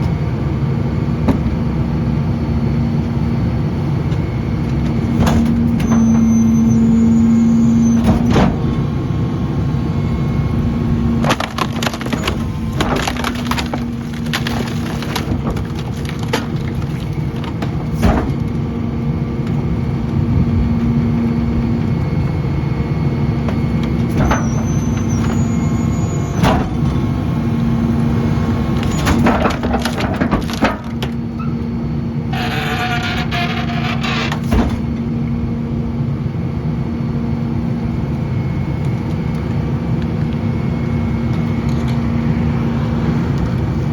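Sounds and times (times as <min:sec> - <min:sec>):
truck engine humming: 0:00.0 - 0:43.9
wooden frame cracking: 0:11.2 - 0:17.8.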